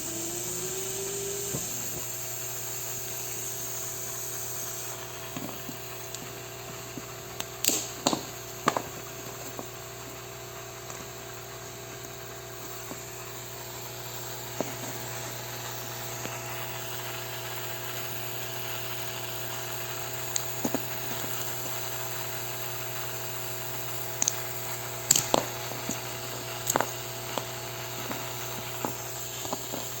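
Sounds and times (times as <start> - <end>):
steady mechanical hum: 0.0 - 30.0.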